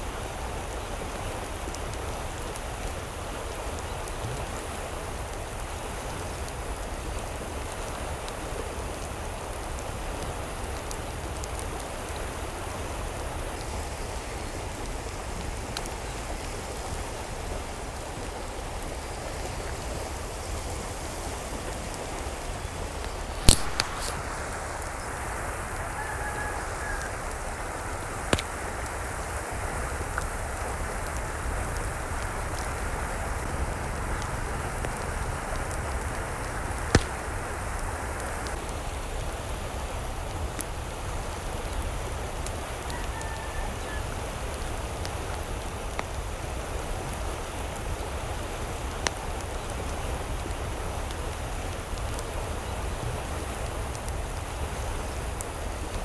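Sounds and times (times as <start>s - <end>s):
running water rushing: 0.0s - 56.0s
sharp clicks: 23.4s - 24.2s.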